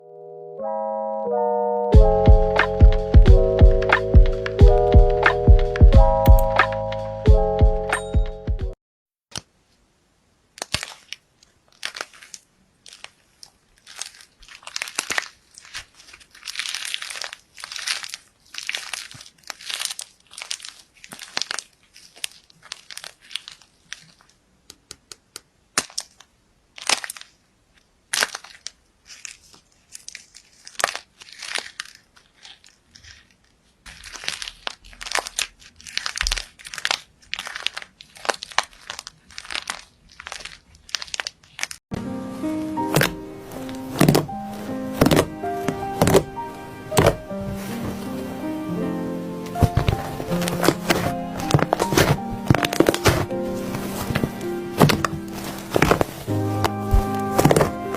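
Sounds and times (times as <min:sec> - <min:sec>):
slime squishing and crackling: 0:10.5 - 0:24.5, 0:25.7 - 0:41.8, 0:42.8 - 0:48.5, 0:49.5 - 0:57.9.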